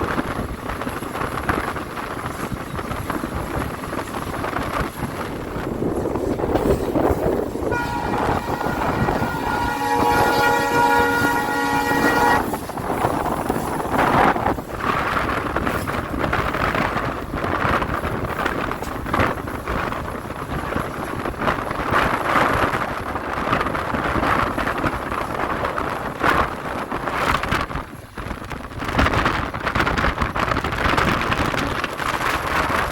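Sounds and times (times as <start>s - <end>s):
train rumbling on track: 0.0s - 32.9s
wind noise: 0.0s - 32.9s
diesel locomotive horn: 7.6s - 12.7s.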